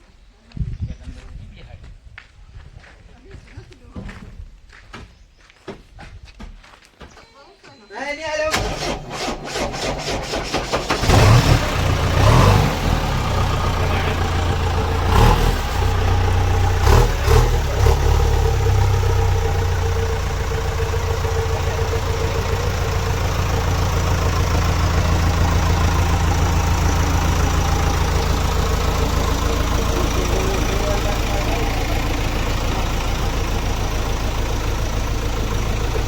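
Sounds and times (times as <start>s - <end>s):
diesel engine revving and idling: 8.5s - 36.0s.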